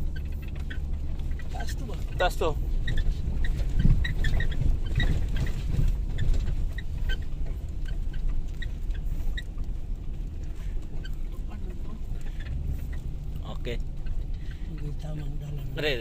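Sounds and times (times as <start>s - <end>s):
short high squeaks: 0.0s - 9.6s
vehicle engine and road rumble: 0.0s - 16.0s.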